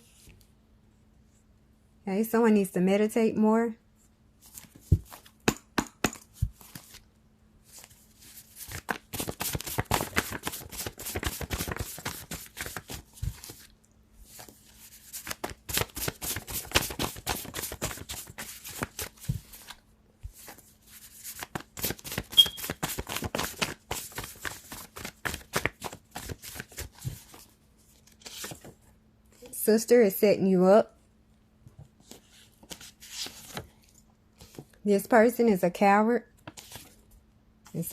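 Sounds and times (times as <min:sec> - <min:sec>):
cards being shuffled: 0:06.3 - 0:07.0, 0:07.7 - 0:13.7, 0:14.3 - 0:28.7, 0:32.0 - 0:33.8.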